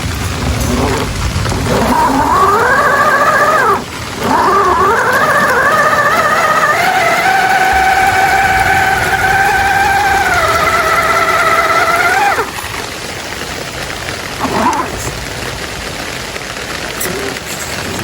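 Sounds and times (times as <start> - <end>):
electric motor and gearbox whining: 0.0 - 15.5
rushing hiss of water: 0.0 - 18.0.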